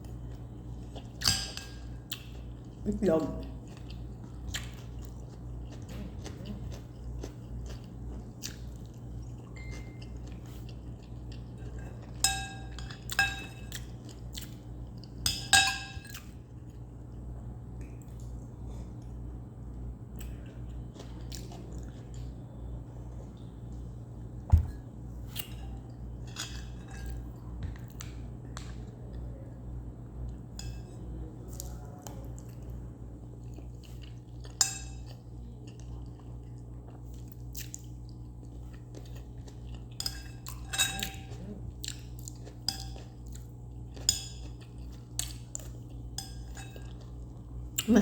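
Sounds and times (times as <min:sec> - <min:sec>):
person chewing: 0:00.0 - 0:02.8, 0:03.4 - 0:15.2, 0:20.1 - 0:22.4, 0:33.4 - 0:47.9
steady low hum: 0:00.0 - 0:48.0
cutlery clinking on a plate: 0:12.1 - 0:13.8, 0:15.3 - 0:16.1, 0:40.0 - 0:41.4.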